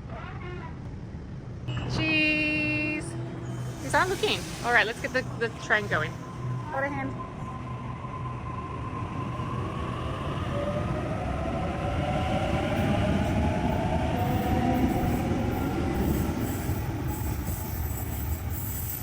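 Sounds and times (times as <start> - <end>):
train motor whine: 1.7 - 7.6
train wheels rumbling on track: 1.8 - 7.5.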